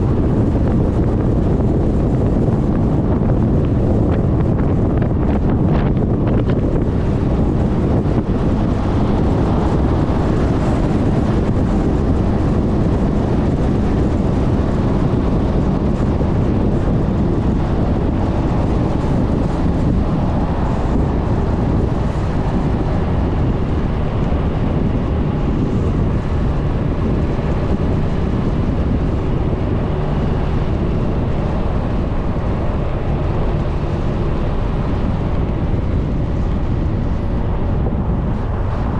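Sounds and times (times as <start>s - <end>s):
road noise: 0.0s - 38.9s
wind rumble on microphone: 0.0s - 38.9s.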